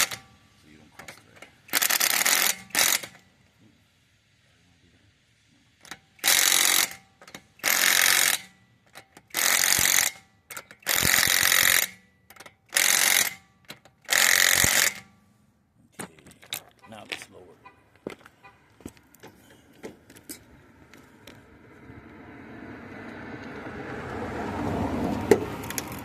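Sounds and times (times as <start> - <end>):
impact wrench bursts: 0.0 - 3.4, 5.6 - 15.3.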